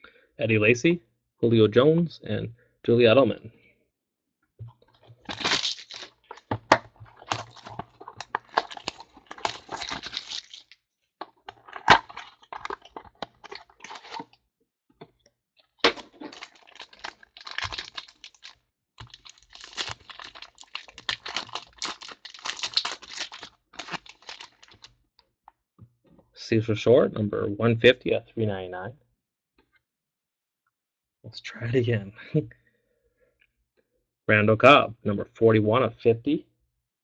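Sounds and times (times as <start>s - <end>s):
wrapper crinkling and tearing: 5.1s - 14.4s, 15.8s - 24.9s.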